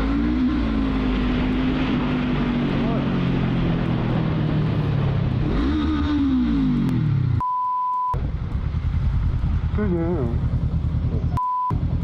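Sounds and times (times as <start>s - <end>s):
censor bleep: 7.4s - 8.2s, 11.4s - 11.8s
vehicle engine running: 8.2s - 12.0s.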